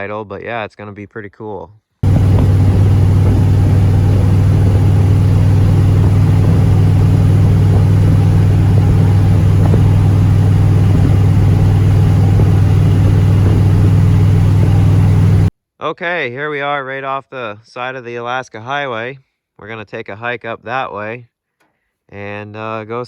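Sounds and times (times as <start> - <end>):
pickup truck engine: 2.0 - 15.5
road noise: 2.0 - 15.5.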